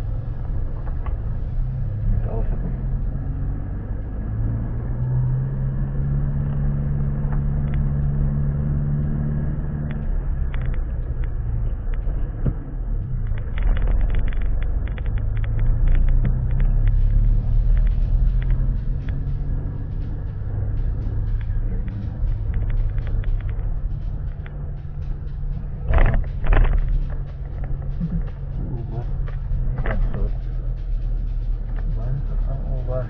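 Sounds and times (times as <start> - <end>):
vehicle engine rumbling: 0.0 - 33.0
rapid rattling clicks: 13.1 - 32.4.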